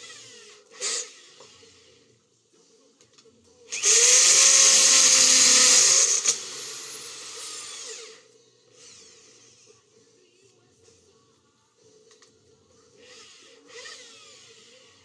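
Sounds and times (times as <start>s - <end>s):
power tool motor running: 3.7s - 8.2s.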